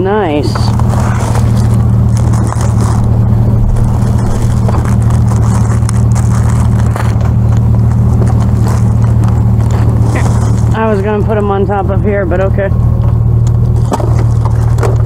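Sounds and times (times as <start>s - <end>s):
engine idling: 0.0s - 15.0s
plastic wrappers rustling: 0.7s - 11.2s.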